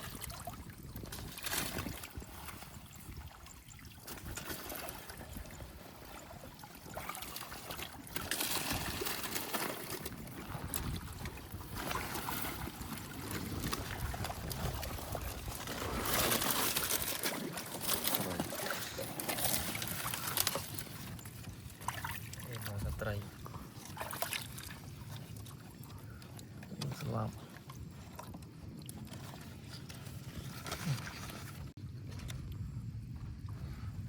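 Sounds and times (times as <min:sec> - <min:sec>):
shallow water sloshing: 0:00.0 - 0:34.0.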